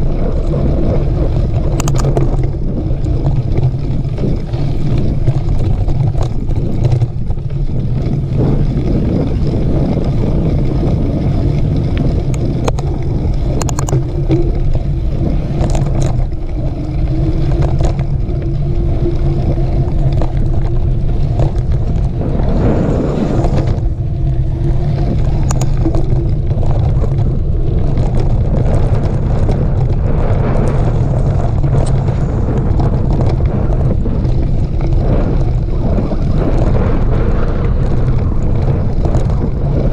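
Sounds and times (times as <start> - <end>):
wind rumble on microphone: 0.0 - 39.9
clicks and rattles: 1.4 - 39.9.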